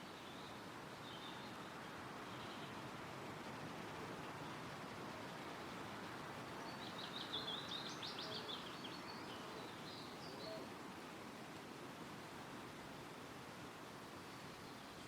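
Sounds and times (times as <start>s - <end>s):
songbird singing: 0.0s - 1.7s, 6.5s - 10.7s
wind rustling through trees: 0.0s - 15.0s.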